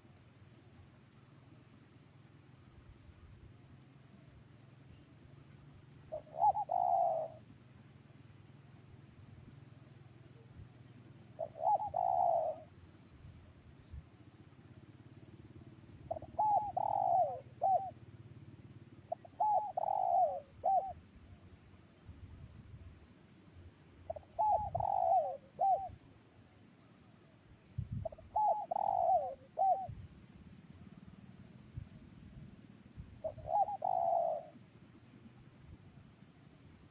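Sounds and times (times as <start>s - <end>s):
small bird chirping: 0.5s - 1.3s, 6.0s - 8.5s, 9.5s - 18.0s, 19.1s - 21.1s, 22.4s - 26.0s, 26.6s - 31.2s
dove cooing: 6.1s - 7.5s, 11.2s - 12.7s, 16.0s - 21.0s, 24.1s - 26.0s, 27.9s - 30.2s, 33.2s - 34.6s.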